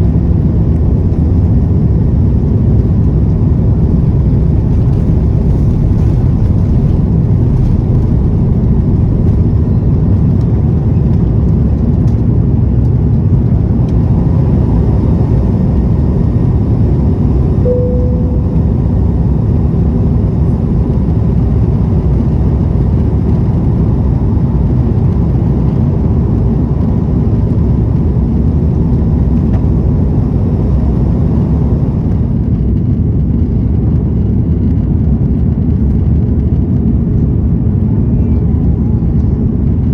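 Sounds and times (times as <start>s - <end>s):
jet engines and airflow in cabin: 0.0s - 39.9s
brief tone: 17.6s - 19.2s.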